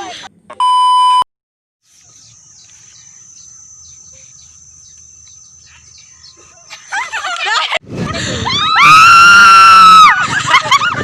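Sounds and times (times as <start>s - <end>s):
birds chirping: 1.9s - 7.5s
high-pitched insect drone: 2.0s - 6.4s.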